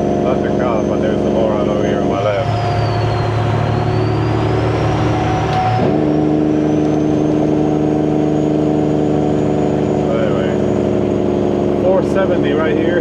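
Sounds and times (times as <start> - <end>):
diesel truck engine running: 0.5 - 13.0
high turbo whistle: 2.2 - 9.6.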